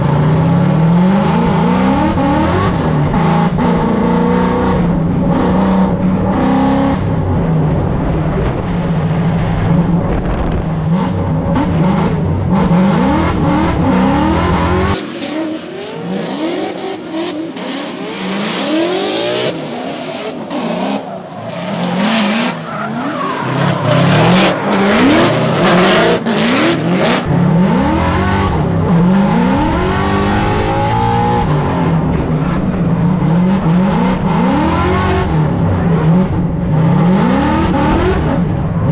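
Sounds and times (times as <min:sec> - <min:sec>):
car engine revving: 0:00.0 - 0:38.9
tires skidding on wet track: 0:12.7 - 0:28.2.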